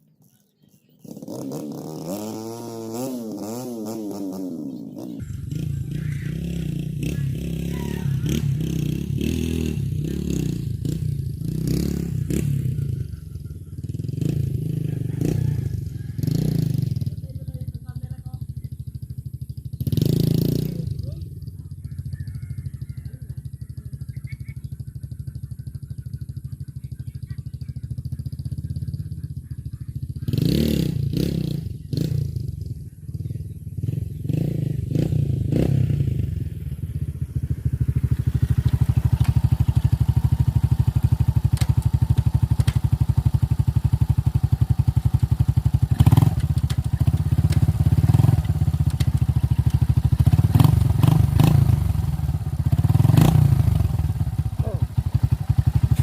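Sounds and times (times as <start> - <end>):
dirt bike engine running: 0.5 - 56.0.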